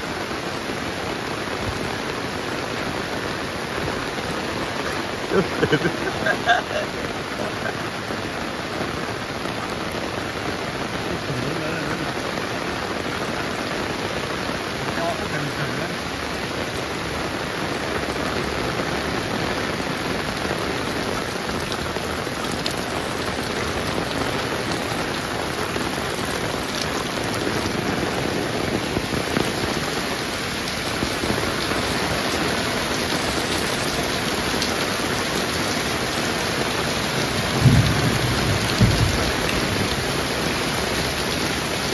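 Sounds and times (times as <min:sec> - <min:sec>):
heavy rain falling: 0:00.0 - 0:41.9
low thumps: 0:37.6 - 0:40.0.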